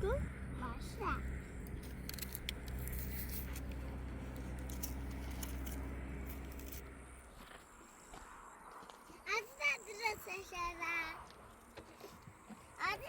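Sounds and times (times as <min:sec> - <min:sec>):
engine running: 0:00.0 - 0:09.0.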